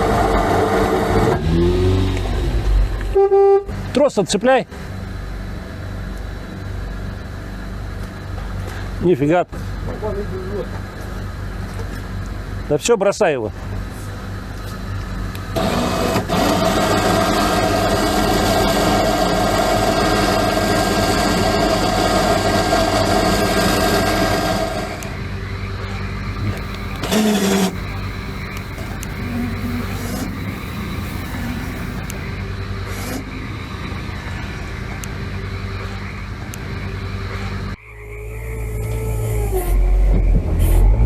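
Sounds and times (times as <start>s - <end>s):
loud engine burst: 26.4s - 32.4s
off-road vehicle engine revving: 26.4s - 32.4s.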